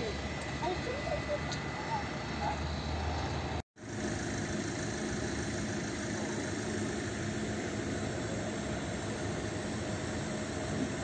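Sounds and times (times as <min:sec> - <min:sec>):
car engine idling: 0:03.4 - 0:10.8.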